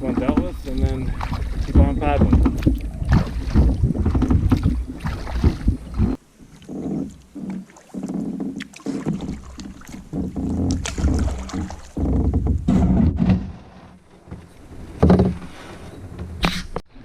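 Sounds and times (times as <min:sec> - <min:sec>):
wind rumbling on microphone: 0:00.0 - 0:08.2
canoe paddling in water: 0:00.0 - 0:17.0.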